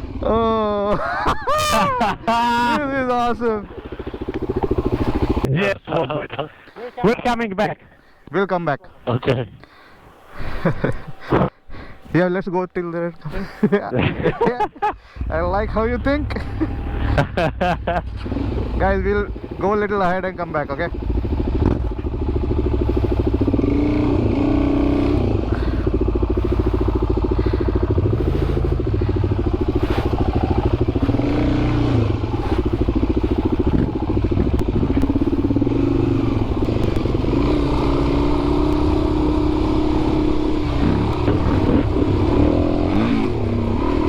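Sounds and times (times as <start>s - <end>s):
motorcycle engine revving: 1.6s - 5.5s, 15.2s - 44.0s.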